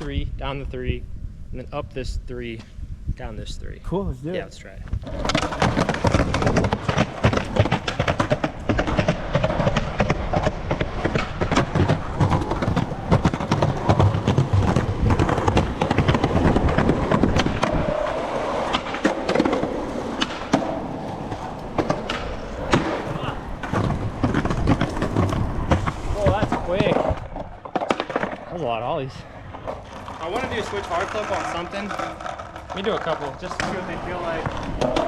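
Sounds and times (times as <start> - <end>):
skateboard rolling on concrete: 3.9 - 35.0
skateboard deck clacks: 5.0 - 28.5.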